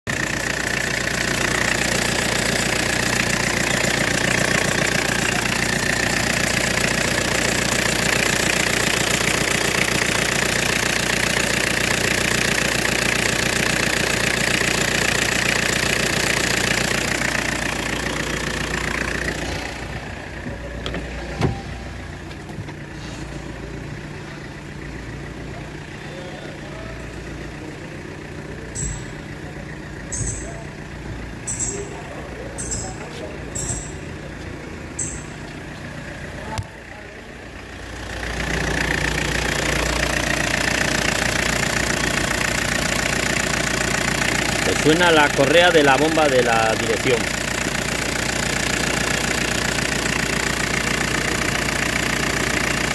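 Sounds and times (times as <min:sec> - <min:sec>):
diesel engine idling: 0:00.0 - 0:52.9
belt squealing: 0:19.4 - 0:23.7, 0:28.8 - 0:30.6.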